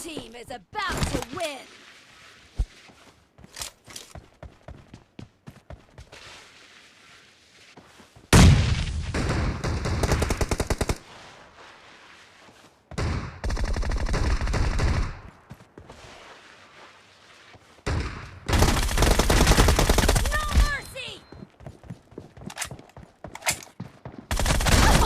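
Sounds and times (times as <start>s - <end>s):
video game automatic gunfire: 18.5s - 20.8s, 24.3s - 25.0s.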